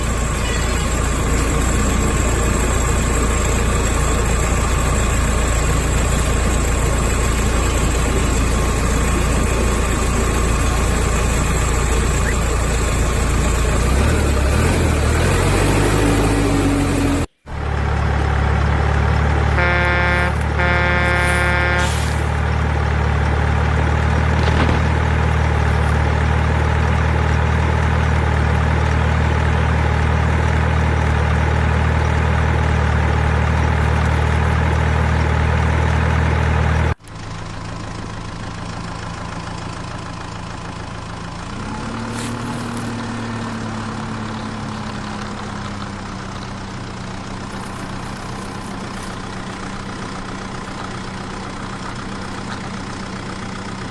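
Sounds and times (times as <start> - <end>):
engine humming: 0.0 - 53.9
quieter engine running: 0.0 - 53.9
short horn tone: 19.5 - 22.3.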